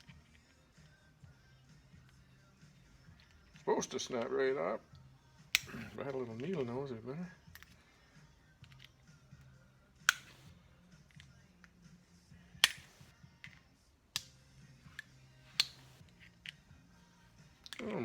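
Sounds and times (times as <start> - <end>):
sharp metallic tool clicks: 5.5 - 5.9, 10.0 - 10.5, 12.6 - 13.1, 15.0 - 16.6.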